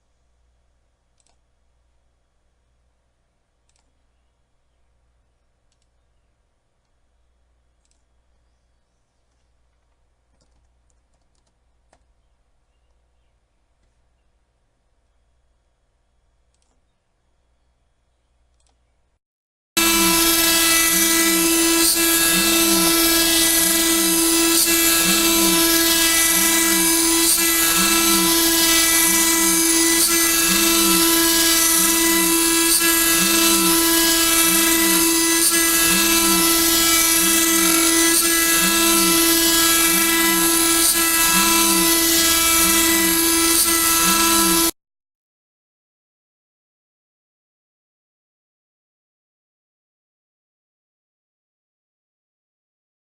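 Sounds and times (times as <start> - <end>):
cutting machine whining: 19.8 - 44.8.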